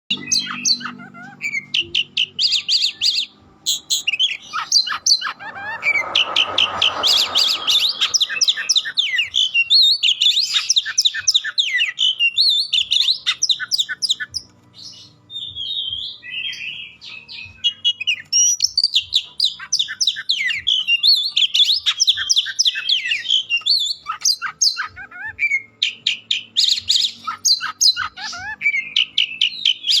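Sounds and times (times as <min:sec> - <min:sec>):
magpie-robin singing: 0:00.1 - 0:30.0
rush of noise: 0:03.4 - 0:09.5.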